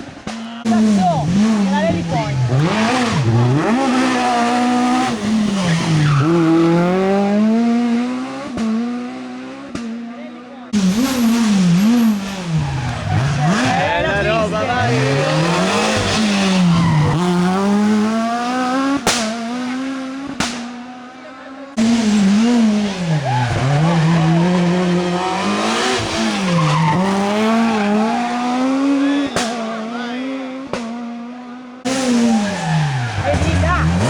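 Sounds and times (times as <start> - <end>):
rally car engines accelerating: 0.0 - 34.0
tyres sliding on asphalt: 0.9 - 6.8, 10.8 - 20.2, 22.6 - 29.9, 31.9 - 34.0.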